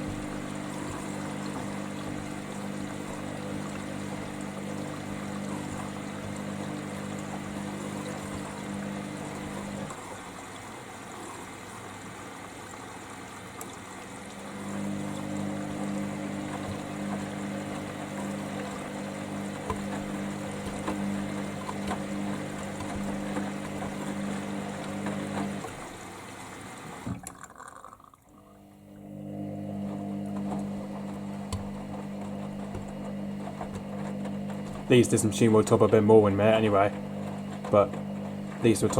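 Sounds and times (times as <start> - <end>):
washing machine motor humming: 0.0 - 38.9
water swishing in drum: 0.0 - 38.9.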